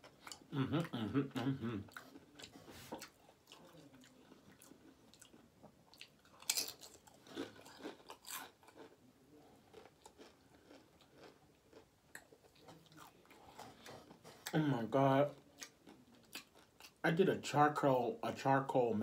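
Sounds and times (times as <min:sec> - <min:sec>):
chewing: 0:00.0 - 0:14.6, 0:15.2 - 0:17.0
chip crunching: 0:01.9 - 0:14.3.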